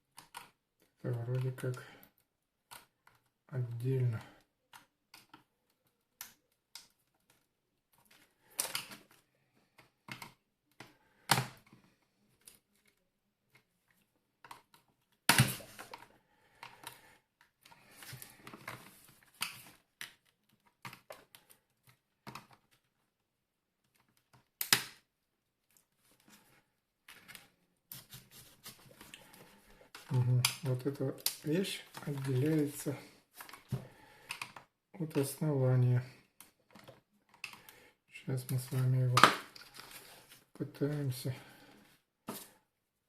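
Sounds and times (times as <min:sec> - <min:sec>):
plastic and metal parts clicking: 0:00.1 - 0:03.4, 0:14.4 - 0:22.9, 0:33.4 - 0:35.4, 0:36.4 - 0:37.8.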